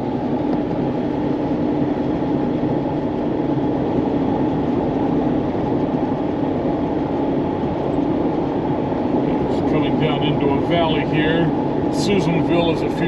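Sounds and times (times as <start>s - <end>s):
road and engine noise in cab: 0.0s - 13.0s.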